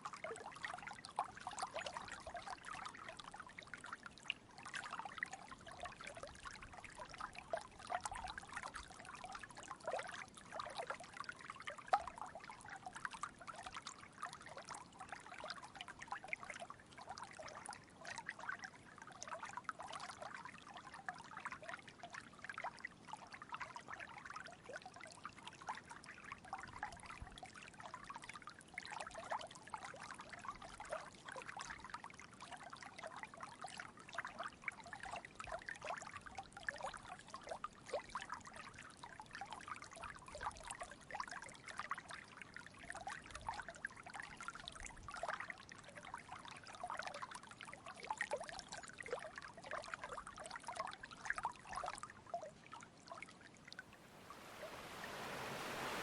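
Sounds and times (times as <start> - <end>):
stream babbling over rocks: 53.9 - 56.0.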